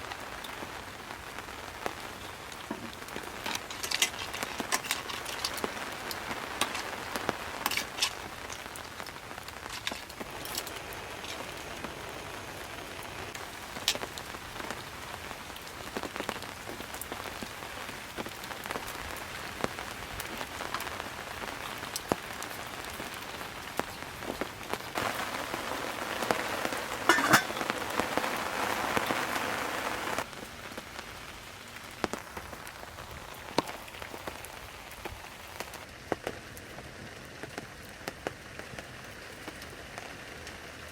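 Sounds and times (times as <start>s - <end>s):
raindrop impacts: 0.0s - 40.9s
steady rain falling: 0.0s - 40.9s.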